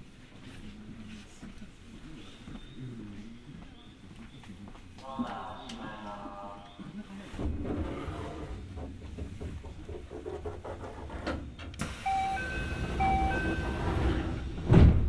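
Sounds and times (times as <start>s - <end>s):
train running rumble: 7.4s - 15.0s
train motor inverter tones: 11.8s - 14.8s
loud thump: 14.6s - 15.0s.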